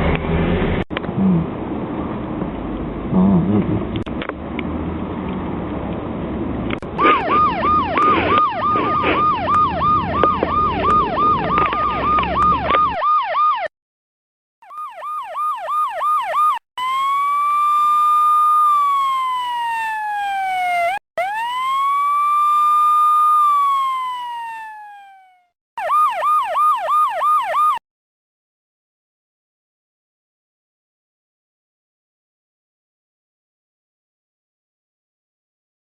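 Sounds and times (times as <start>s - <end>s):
traffic noise: 0.0s - 13.0s
police siren yelp and wail: 7.0s - 13.7s, 14.6s - 27.8s.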